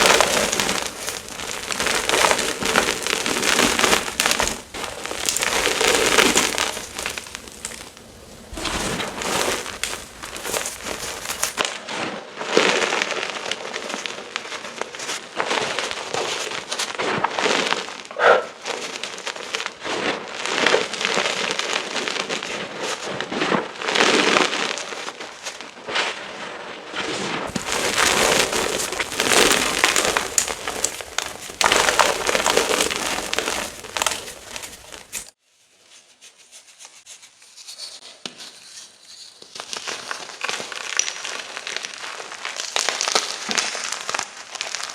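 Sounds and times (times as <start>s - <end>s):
chalk chunks being crushed: 0.0s - 11.7s, 27.5s - 35.4s, 37.4s - 44.9s.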